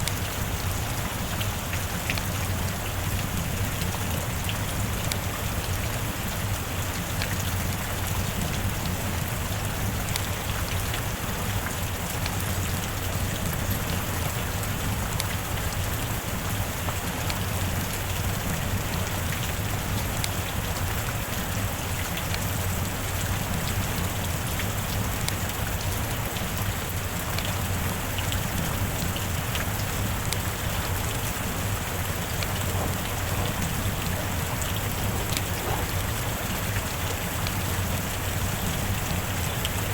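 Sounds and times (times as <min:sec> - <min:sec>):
heavy rain falling: 0:00.0 - 0:39.9
rain drop ticks: 0:00.0 - 0:39.9.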